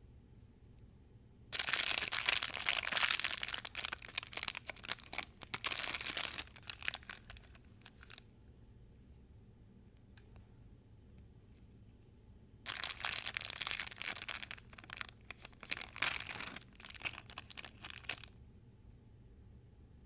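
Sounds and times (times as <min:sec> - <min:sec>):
packaging crinkling and tearing: 0:01.6 - 0:08.2, 0:12.7 - 0:18.3.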